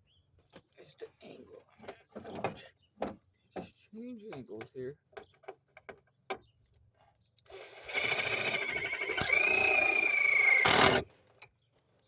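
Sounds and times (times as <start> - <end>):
power drill boring a hole: 7.5 - 11.0.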